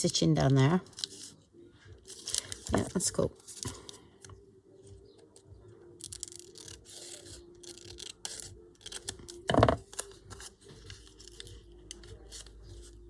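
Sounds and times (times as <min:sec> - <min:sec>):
paper rustling: 0:00.8 - 0:01.4, 0:02.1 - 0:04.0, 0:06.1 - 0:13.0.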